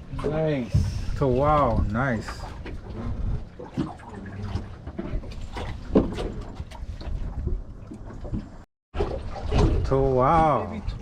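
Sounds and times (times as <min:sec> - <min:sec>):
water lapping around boat: 0:00.0 - 0:11.0
wind buffeting microphone: 0:00.2 - 0:08.4.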